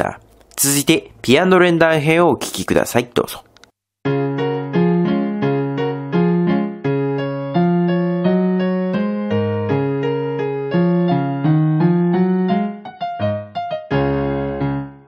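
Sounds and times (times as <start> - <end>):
electronic keyboard piano chords: 4.0 - 15.0.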